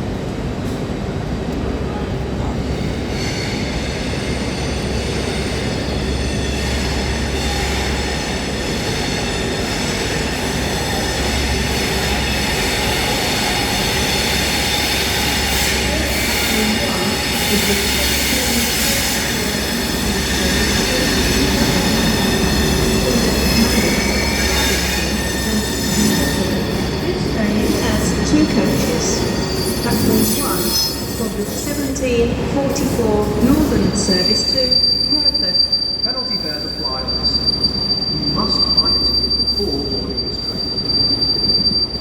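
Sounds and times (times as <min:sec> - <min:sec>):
train engine and wheels rumbling: 0:00.0 - 0:42.0
high-pitched wheel squeal: 0:14.0 - 0:31.8, 0:34.2 - 0:42.0.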